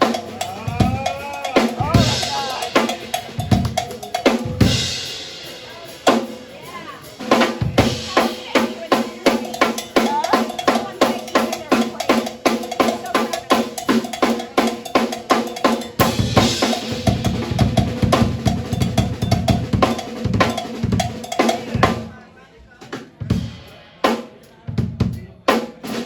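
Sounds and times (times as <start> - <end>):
heavy bass drum hits: 0.0 - 5.8, 16.0 - 21.9
drum kit solo: 0.0 - 22.2, 22.9 - 26.0.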